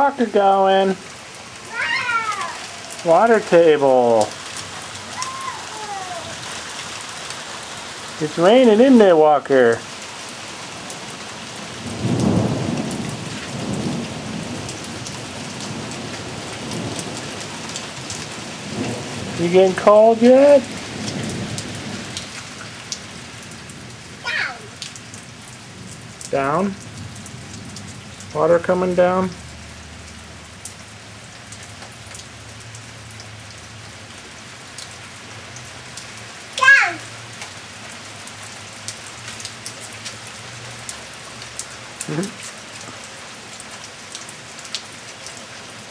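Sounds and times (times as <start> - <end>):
rain pattering: 0.0 - 45.9.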